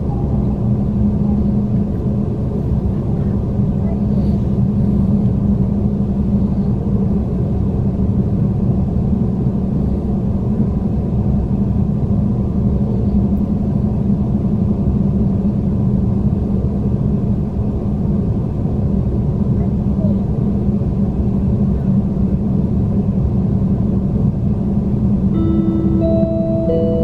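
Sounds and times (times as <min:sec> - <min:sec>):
low hum: 0:24.8 - 0:27.0.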